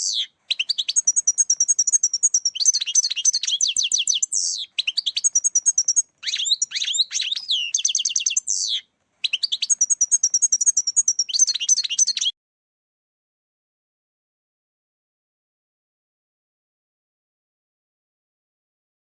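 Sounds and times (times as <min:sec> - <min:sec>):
goldfinch twittering and trilling: 0:00.0 - 0:12.3.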